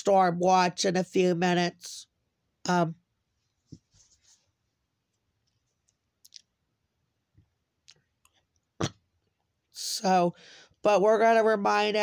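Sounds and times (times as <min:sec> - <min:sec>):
person speaking: 0:02.7 - 0:03.0, 0:09.8 - 0:12.0.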